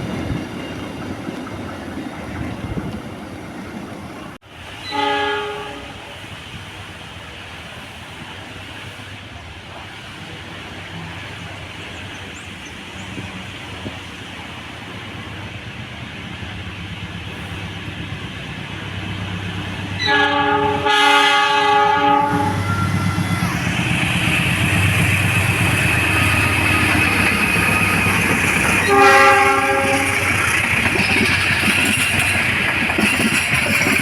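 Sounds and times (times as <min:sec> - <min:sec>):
passing train rumble and rail noise: 0:00.0 - 0:34.0
train horn blasts: 0:04.8 - 0:06.1, 0:20.0 - 0:23.5, 0:28.8 - 0:30.3.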